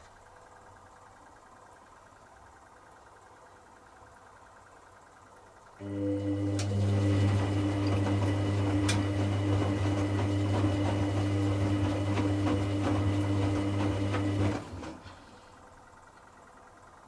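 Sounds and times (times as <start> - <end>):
drain pump humming: 5.8 - 17.0.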